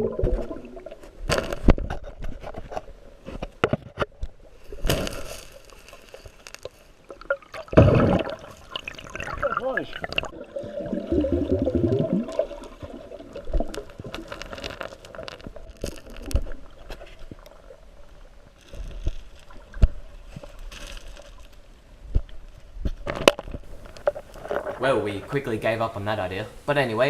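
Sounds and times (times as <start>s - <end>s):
creek water gurgling: 7.0s - 18.7s.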